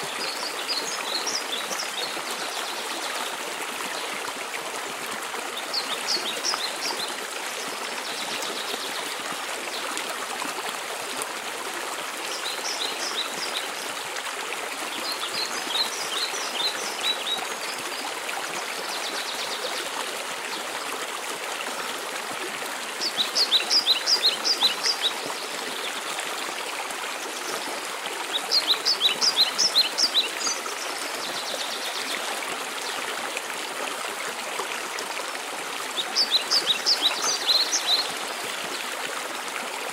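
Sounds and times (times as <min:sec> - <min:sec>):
songbird singing: 0:23.0 - 0:26.0, 0:28.3 - 0:32.1, 0:36.0 - 0:38.2.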